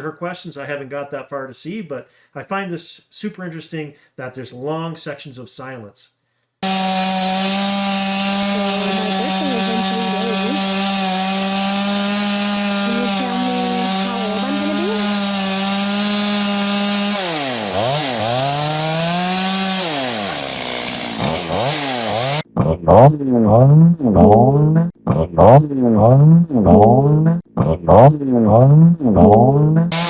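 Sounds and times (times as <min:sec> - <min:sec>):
two-stroke chainsaw running: 0:06.6 - 0:22.5.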